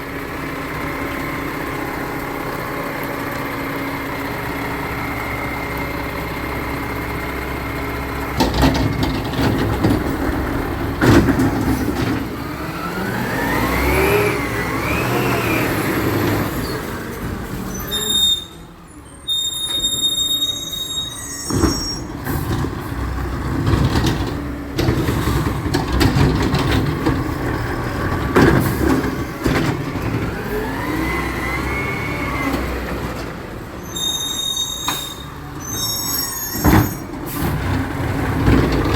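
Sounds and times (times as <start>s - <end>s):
diesel truck engine revving: 0.0s - 18.1s, 22.0s - 33.9s, 34.6s - 38.9s
bin banging and clanking: 8.4s - 12.4s, 23.6s - 27.6s.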